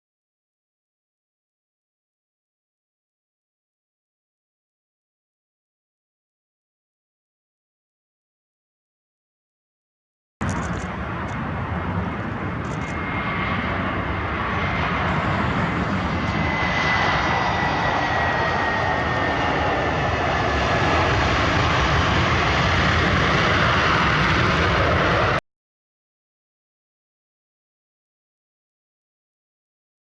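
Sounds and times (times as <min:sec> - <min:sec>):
jet engines roaring with whine: 0:10.4 - 0:25.4.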